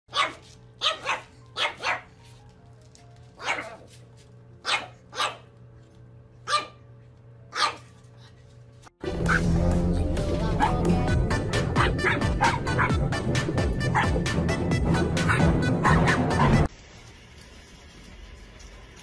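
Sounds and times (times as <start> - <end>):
puppy barking: 0.1 - 2.2, 3.4 - 3.9, 4.6 - 5.5, 6.4 - 6.9, 7.5 - 8.0, 10.6 - 10.9, 11.6 - 13.2, 13.9 - 14.2, 14.9 - 16.7.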